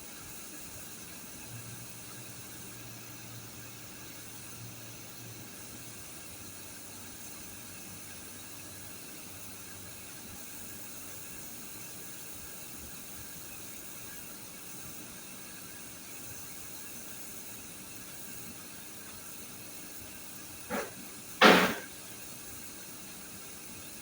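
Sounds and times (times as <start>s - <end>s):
short sharp sounds: 20.7s - 21.9s.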